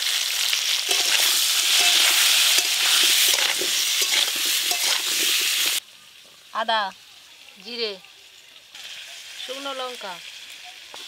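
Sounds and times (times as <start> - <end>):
potatoes sizzling in oil: 0.0 - 11.0
metal spatula scraping pan: 0.8 - 5.8.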